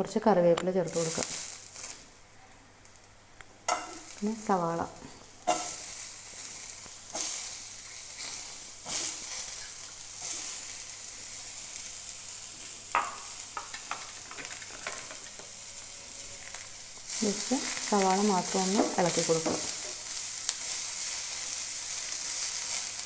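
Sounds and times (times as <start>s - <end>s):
vegetables sizzling in hot oil: 0.8s - 23.0s.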